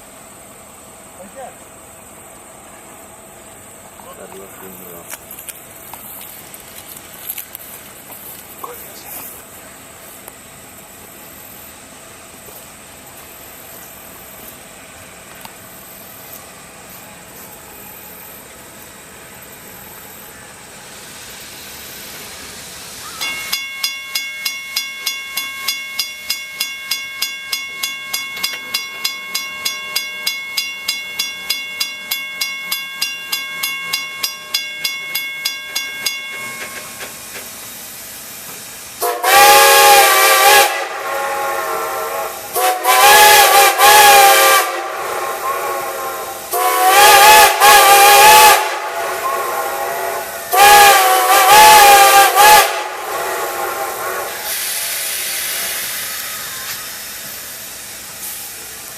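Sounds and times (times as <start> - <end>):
steam hissing: 0.0 - 58.9
steam locomotive chime whistle: 22.9 - 37.5, 39.0 - 58.6
locomotive bell ringing: 23.2 - 37.3.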